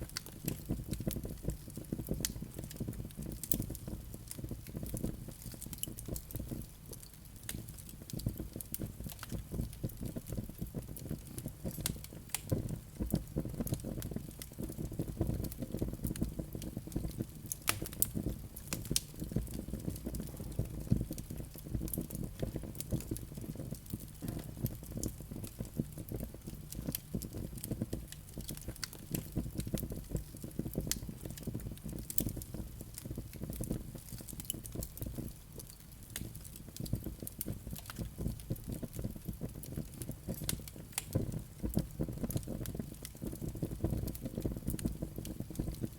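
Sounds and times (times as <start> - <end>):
wood fire crackling and popping: 0.0 - 45.9
low rush of flames: 11.0 - 45.9.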